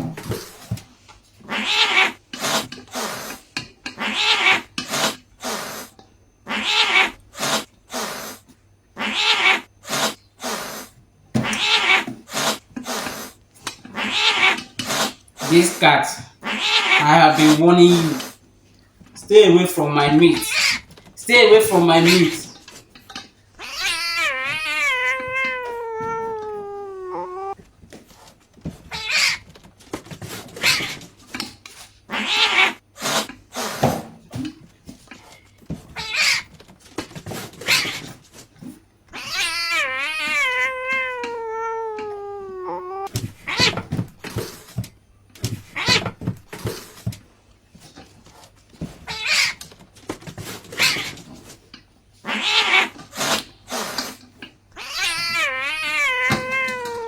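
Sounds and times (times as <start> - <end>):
cat yowling: 1.4 - 3.4, 4.0 - 8.3, 9.0 - 13.1, 13.9 - 18.2, 23.6 - 27.6, 28.9 - 29.4, 32.1 - 32.8, 36.0 - 36.5, 39.1 - 43.9, 49.1 - 49.6, 52.2 - 53.4, 54.8 - 57.0
cat meowing: 1.5 - 3.3, 4.0 - 5.6, 6.4 - 8.1, 9.0 - 10.6, 11.4 - 12.6, 13.9 - 18.3, 19.3 - 22.6, 23.6 - 27.6, 28.9 - 29.4, 32.1 - 32.8, 35.9 - 36.5, 39.1 - 44.4, 45.6 - 46.2, 49.0 - 49.6, 52.2 - 53.0, 54.7 - 57.0.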